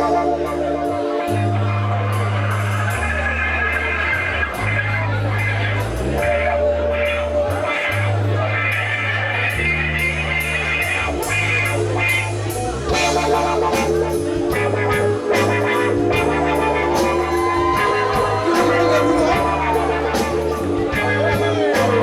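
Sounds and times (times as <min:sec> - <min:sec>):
electric guitar: 0:00.0 - 0:22.0
steady drum beat: 0:09.6 - 0:22.0.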